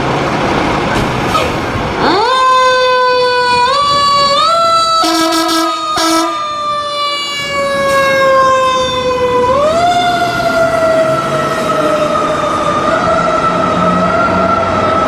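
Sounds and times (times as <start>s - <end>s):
fire engine siren: 1.8s - 15.0s
horn blast: 5.0s - 6.4s.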